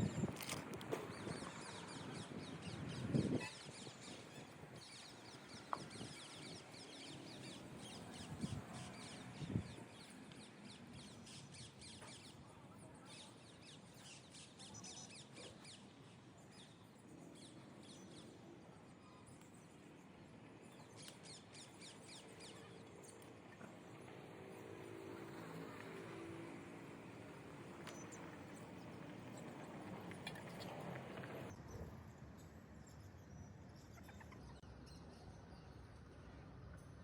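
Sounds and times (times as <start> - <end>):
birds chirping: 0.0 - 31.5.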